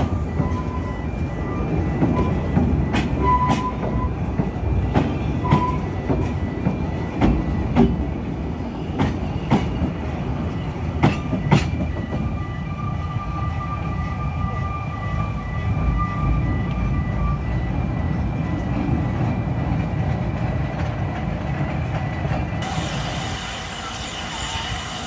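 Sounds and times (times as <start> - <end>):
clickety-clack over rail joints: 0.0 - 12.4, 15.2 - 22.8
railway carriage wheels rumbling: 0.0 - 25.0.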